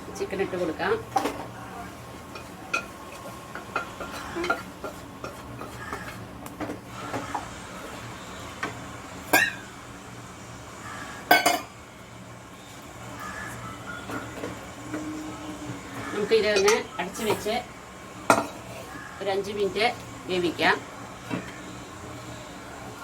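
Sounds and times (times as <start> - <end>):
spoon scraping cooking pot: 2.3 - 6.3.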